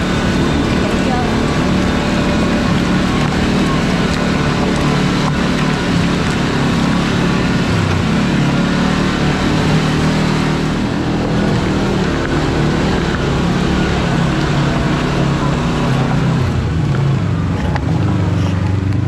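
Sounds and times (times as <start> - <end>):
continuous noisy rush: 0.0 - 19.0
vehicle engine drone: 0.0 - 19.0.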